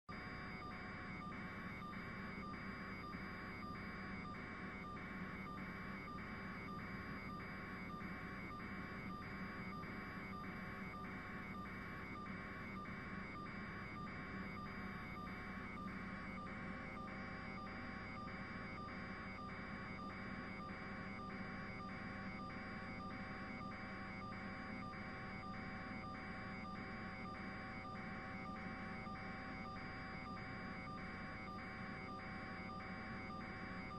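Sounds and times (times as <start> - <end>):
pulsing electronic beep: 0.6 - 33.9.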